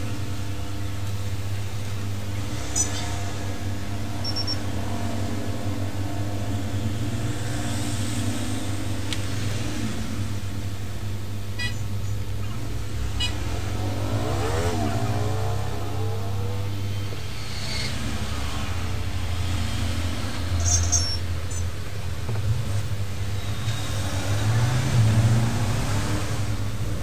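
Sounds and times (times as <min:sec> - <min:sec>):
steady low hum: 0:00.0 - 0:20.6
passing vehicle engine: 0:12.2 - 0:21.5, 0:22.4 - 0:27.0.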